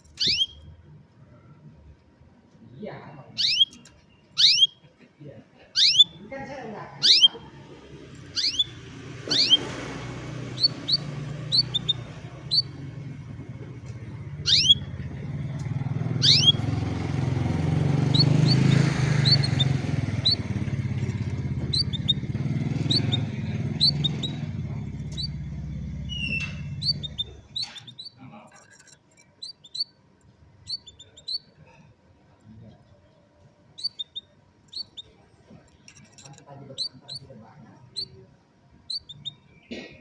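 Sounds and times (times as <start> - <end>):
canary chirping: 0.0 - 0.9, 2.8 - 4.9, 5.7 - 31.9, 32.7 - 39.8
vehicle engine humming: 5.8 - 31.6, 32.2 - 38.3.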